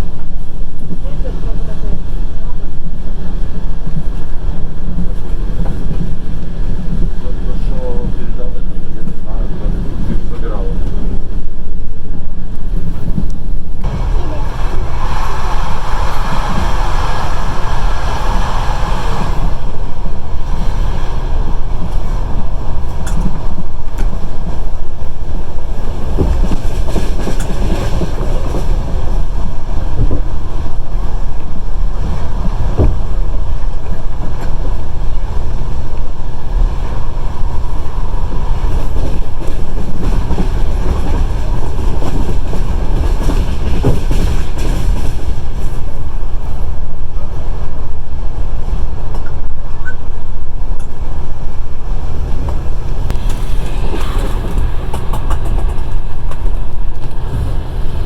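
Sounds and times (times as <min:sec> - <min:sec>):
train wheels rumbling on track: 0:00.0 - 0:58.0
rushing air: 0:13.3 - 0:27.2, 0:27.8 - 0:58.0
wheels clicking over rail joints: 0:19.3 - 0:46.6, 0:52.3 - 0:58.0.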